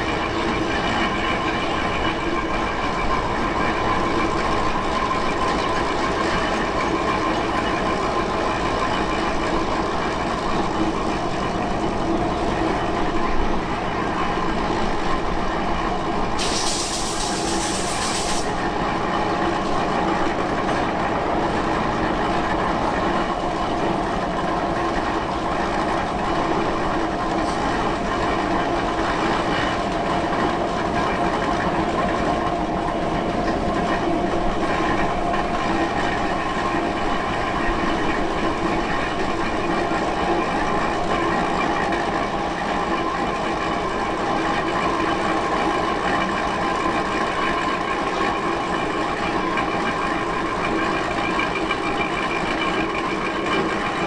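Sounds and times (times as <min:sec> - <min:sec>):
burst of hiss: 0:16.4 - 0:18.5.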